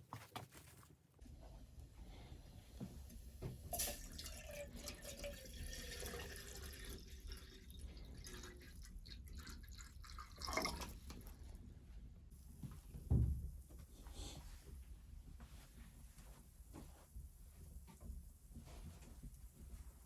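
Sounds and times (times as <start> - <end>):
water dripping and trickling: 3.6 - 11.4.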